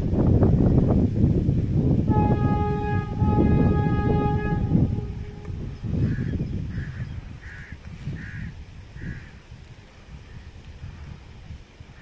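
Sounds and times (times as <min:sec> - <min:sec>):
passing train rumble: 0:01.7 - 0:06.8
train horn: 0:02.0 - 0:06.3
crow cawing: 0:06.0 - 0:09.4.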